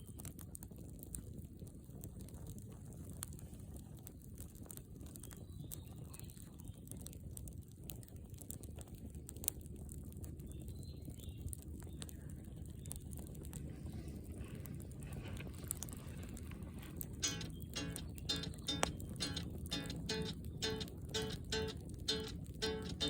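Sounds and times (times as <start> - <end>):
campfire crackling and popping: 0.0 - 23.0
low steady rumble: 13.6 - 23.0.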